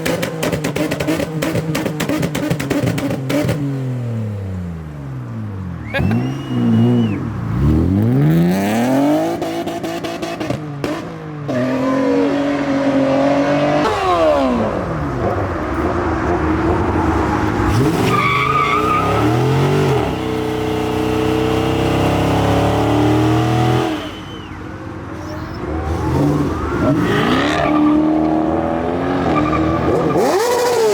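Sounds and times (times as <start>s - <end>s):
car engines revving: 0.0s - 30.9s
short high squeal: 23.8s - 27.2s.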